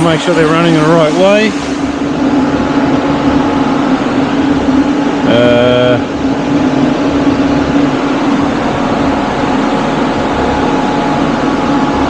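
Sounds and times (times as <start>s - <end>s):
radiator cooling fans running: 0.0s - 12.0s
car engine idling: 0.8s - 12.0s.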